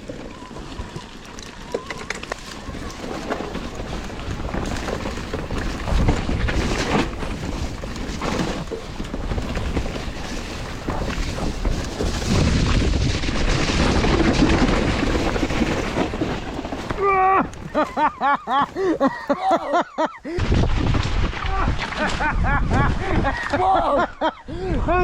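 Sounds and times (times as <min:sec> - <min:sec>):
mountain bike rattling on trail: 0:00.0 - 0:24.3
wind rushing over microphone: 0:02.5 - 0:16.7.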